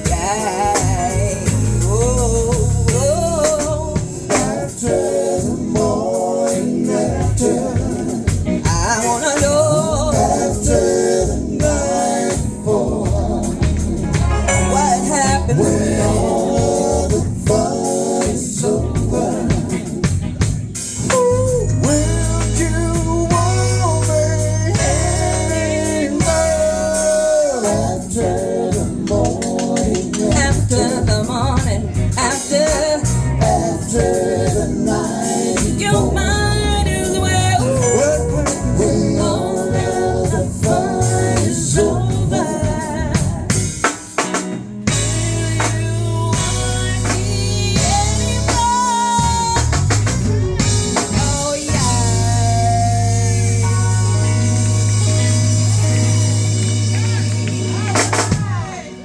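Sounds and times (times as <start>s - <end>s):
band playing bass drums tambourine: 0.0s - 59.0s
person singing: 21.0s - 43.7s, 51.0s - 56.4s.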